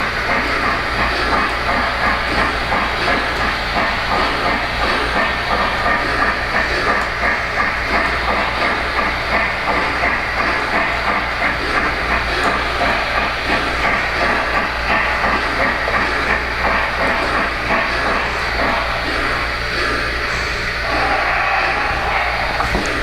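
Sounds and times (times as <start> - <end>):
model steam locomotive chuffing: 0.0 - 23.0.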